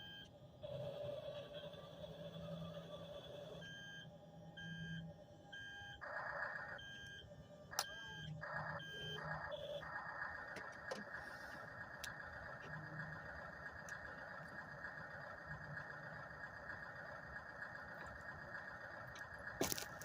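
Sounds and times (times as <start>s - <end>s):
toy reversing alarm beeps: 0.0s - 0.3s, 1.2s - 20.0s.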